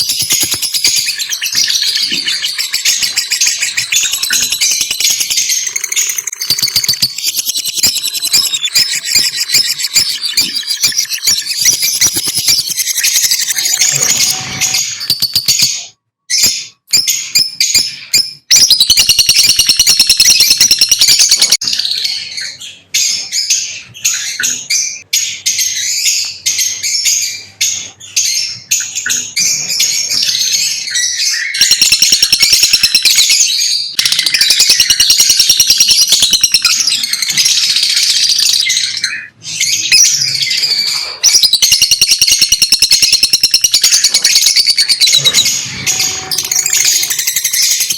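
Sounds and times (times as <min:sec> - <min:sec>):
lovebirds chirping: 0:00.0 - 0:47.9.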